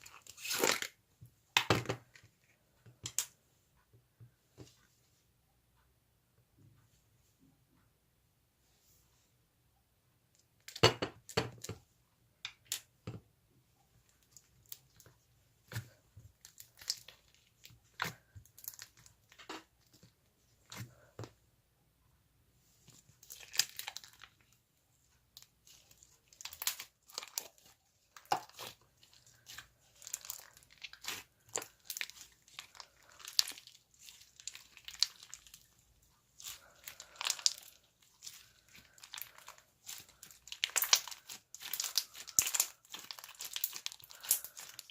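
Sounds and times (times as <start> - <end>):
slime squishing: 14.0 - 21.4, 22.9 - 44.9.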